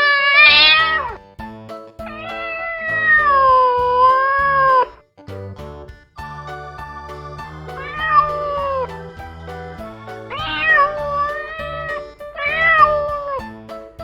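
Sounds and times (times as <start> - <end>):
cat meowing: 0.0 - 1.2, 7.7 - 8.9, 10.3 - 13.1
background music: 0.5 - 14.0.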